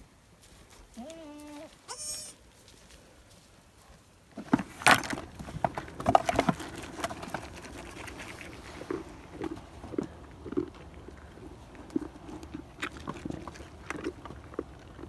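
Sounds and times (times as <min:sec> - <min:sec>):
rustling: 0:00.4 - 0:15.0
goat bleating: 0:00.9 - 0:02.4
knocks and clatter: 0:04.4 - 0:08.0.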